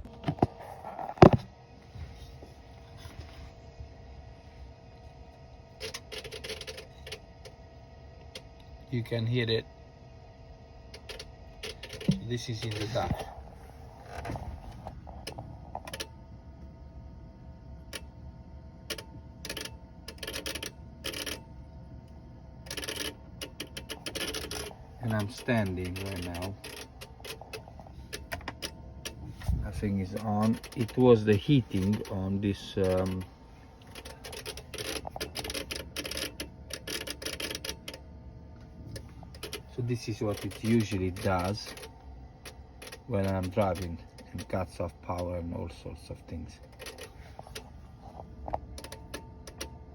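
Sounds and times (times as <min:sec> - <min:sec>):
electrical clicking: 0:10.9 - 0:16.2, 0:18.8 - 0:49.9.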